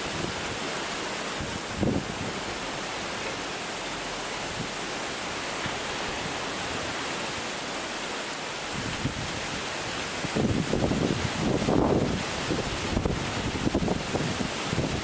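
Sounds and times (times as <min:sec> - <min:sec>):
wind buffeting microphone: 0:00.0 - 0:00.7, 0:01.3 - 0:02.7, 0:08.7 - 0:15.0
wind roaring through bamboo: 0:00.0 - 0:15.0.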